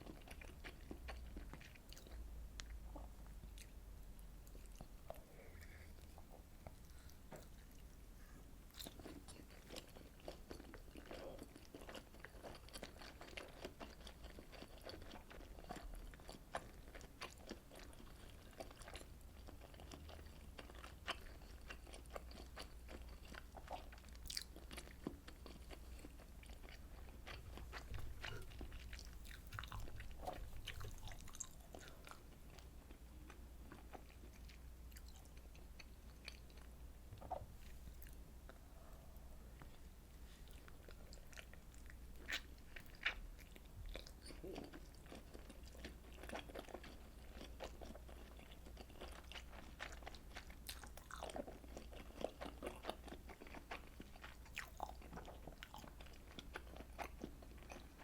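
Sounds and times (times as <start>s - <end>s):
person chewing food: 0.0s - 58.0s.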